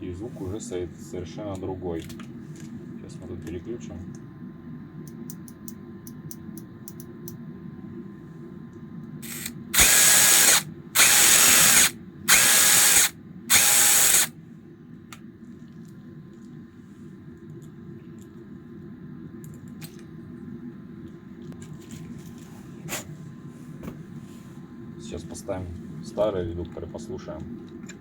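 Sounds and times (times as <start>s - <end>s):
cordless impact wrench running: 9.2s - 14.3s.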